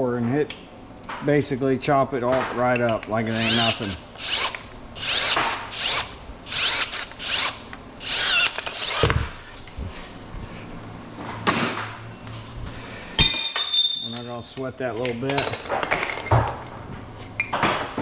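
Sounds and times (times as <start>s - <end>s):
power cutting tool whirring: 3.3s - 9.3s.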